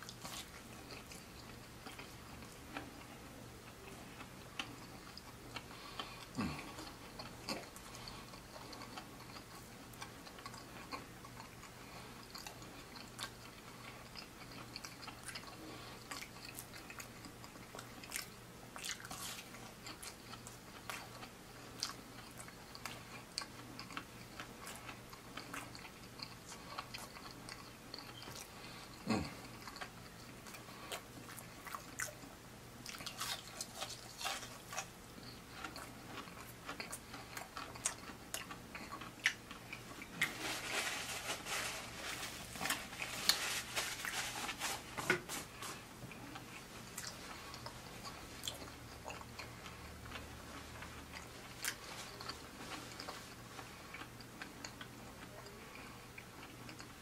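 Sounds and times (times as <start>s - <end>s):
biting and chewing fried food: 0.0s - 57.0s.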